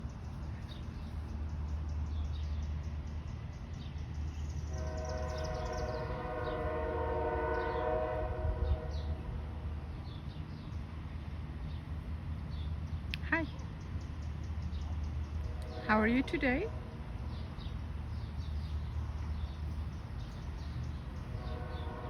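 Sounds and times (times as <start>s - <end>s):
long multi-tone horn blast: 4.7s - 9.6s, 15.4s - 17.0s, 21.3s - 22.0s
steady low rumble: 8.3s - 22.0s.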